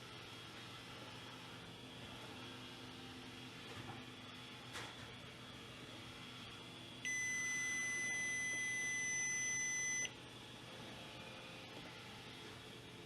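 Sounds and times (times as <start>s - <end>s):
high electronic beep: 7.1s - 10.1s.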